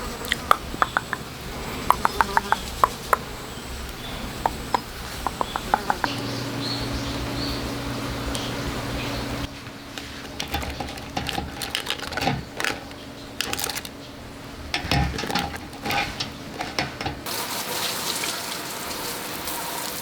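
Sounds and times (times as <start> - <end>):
handling clicks and knocks: 1.9 - 3.2, 3.9 - 6.2, 10.0 - 14.0, 14.7 - 17.3.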